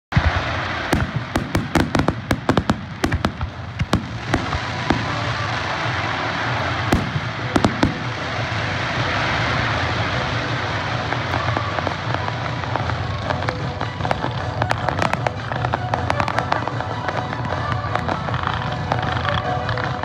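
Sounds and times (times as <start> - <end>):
firework shells bursting: 0.2 - 8.6
steady firework hiss: 0.2 - 20.0.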